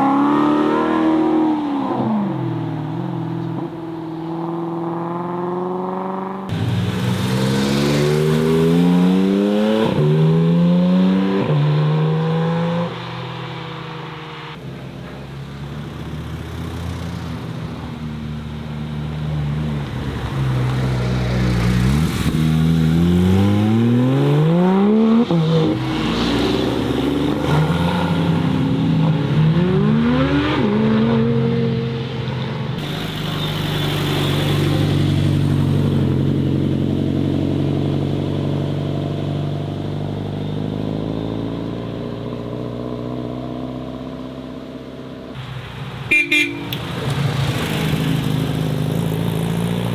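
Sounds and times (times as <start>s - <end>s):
car engine accelerating: 0.0s - 12.9s, 19.4s - 32.0s.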